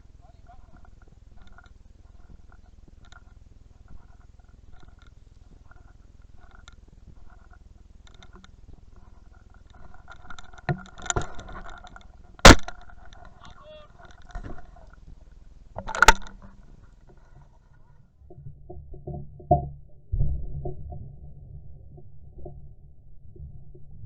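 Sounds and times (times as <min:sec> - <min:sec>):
shotgun shots: 0:12.5 - 0:12.8.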